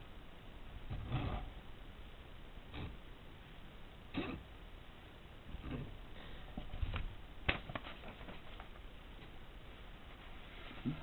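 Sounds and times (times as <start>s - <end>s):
steady background hiss: 0.0s - 11.0s
paper sheets rustling: 7.5s - 8.8s.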